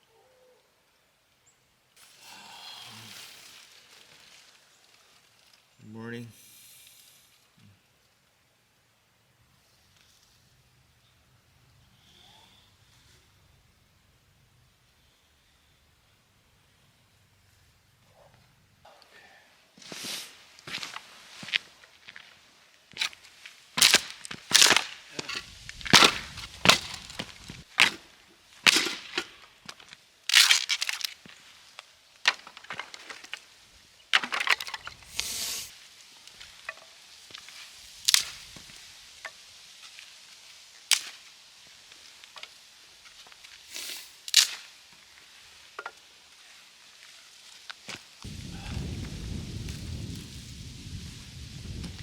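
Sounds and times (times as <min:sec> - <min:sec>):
sharp cracks and crunches: 0:20.6 - 0:35.6, 0:36.2 - 0:39.0, 0:39.8 - 0:45.4.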